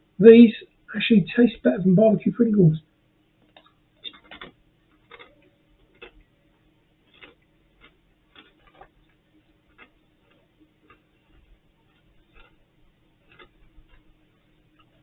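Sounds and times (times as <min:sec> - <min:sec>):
person chewing crisp: 0:03.5 - 0:15.0.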